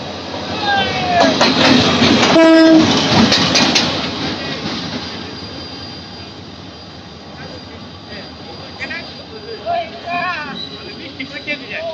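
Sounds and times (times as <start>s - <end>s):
train wheels clacking over rails: 0.7s - 11.9s
train horn blast: 2.3s - 2.9s.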